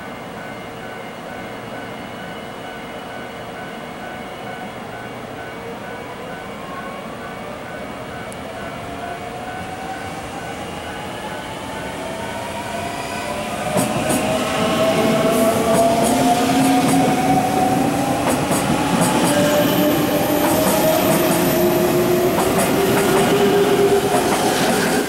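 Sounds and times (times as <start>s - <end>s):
electric train whine: 0.0s - 25.0s
train rumble: 6.0s - 25.0s.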